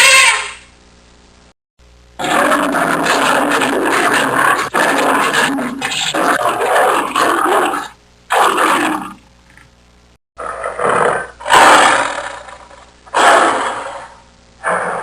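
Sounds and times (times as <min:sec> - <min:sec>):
big cat roaring: 0:02.2 - 0:09.2, 0:10.4 - 0:15.0
big cat growling: 0:02.2 - 0:09.7, 0:10.4 - 0:15.0.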